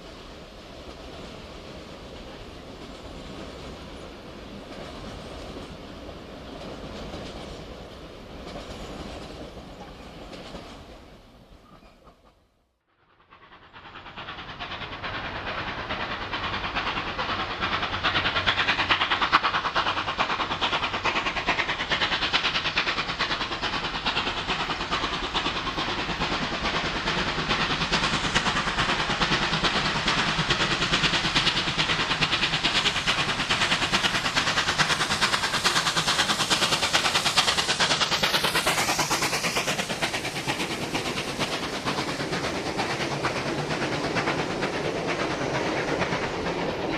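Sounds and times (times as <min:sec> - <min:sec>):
train wheels on rails: 0:00.0 - 0:46.9
steam locomotive exhaust: 0:13.0 - 0:46.9.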